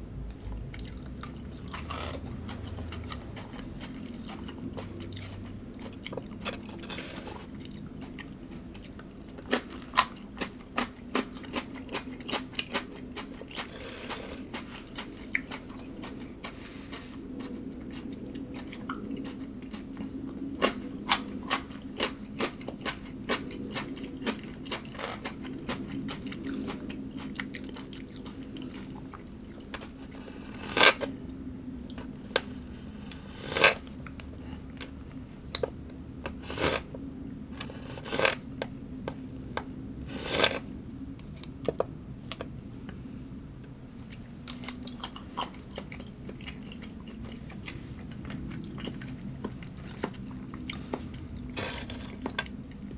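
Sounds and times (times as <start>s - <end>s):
low hum: 0.0s - 7.9s
person chewing and crunching food: 0.3s - 43.0s, 43.6s - 52.9s.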